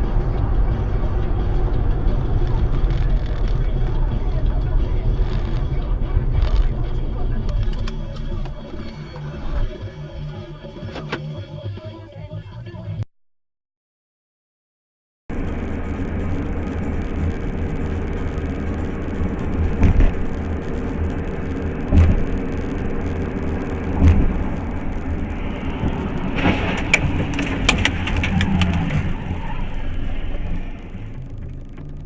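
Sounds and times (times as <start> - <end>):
car road and engine rumble: 0.0 - 11.8, 15.3 - 32.0
heavy thumps: 26.4 - 29.2
sharp knocks and clatter: 26.4 - 29.2.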